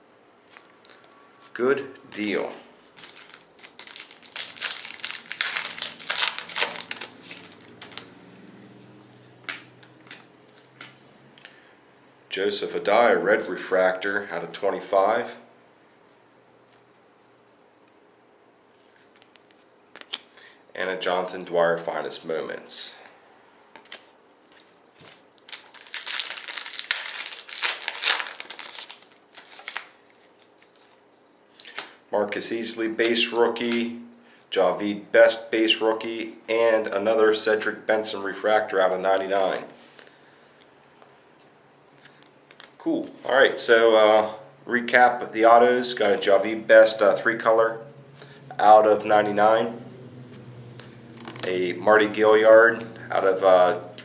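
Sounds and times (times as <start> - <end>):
foil wrapper crinkling and tearing: 3.0 - 8.1, 25.0 - 31.0.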